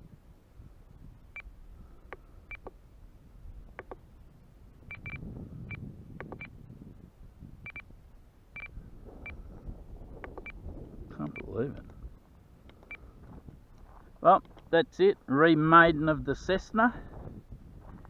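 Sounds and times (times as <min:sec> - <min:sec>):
wind rumble: 0:00.0 - 0:14.8, 0:15.8 - 0:18.0
short high-pitched beeps: 0:04.9 - 0:06.6, 0:07.6 - 0:07.9, 0:08.6 - 0:09.4, 0:11.3 - 0:11.5.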